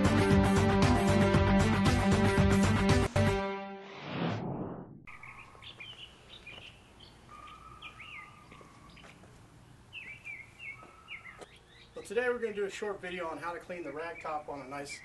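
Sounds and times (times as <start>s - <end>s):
songbirds chirping: 5.1s - 15.0s.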